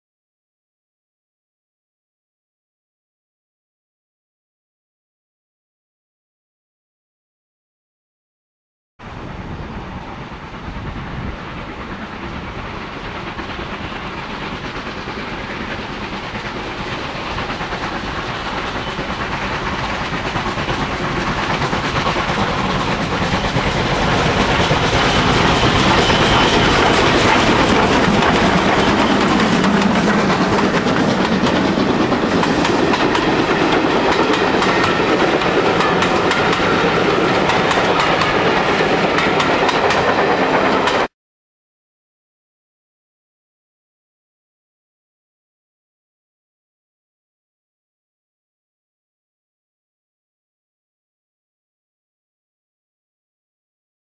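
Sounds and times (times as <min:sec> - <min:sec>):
train running on rails: 0:09.0 - 0:41.1.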